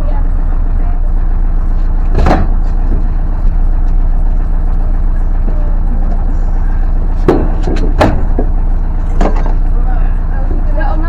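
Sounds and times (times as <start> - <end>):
boat engine rumbling: 0.0 - 11.0
sharp knocks: 2.1 - 2.6, 7.2 - 8.5.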